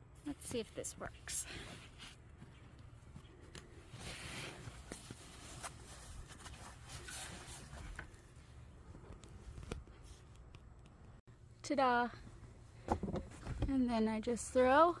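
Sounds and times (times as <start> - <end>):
rustling of soft bags: 1.3 - 10.3.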